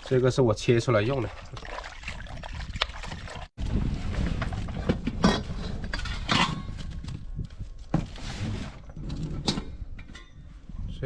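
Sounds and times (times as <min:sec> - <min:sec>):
wind buffeting microphone: 0:01.2 - 0:08.0.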